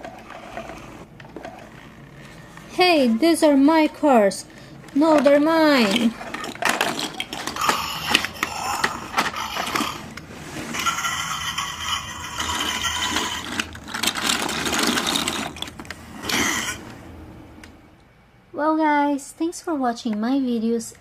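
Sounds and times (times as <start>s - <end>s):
plastic toys rattling: 4.9s - 16.8s
plastic toy clicks and knocks: 5.1s - 10.0s, 12.1s - 16.7s.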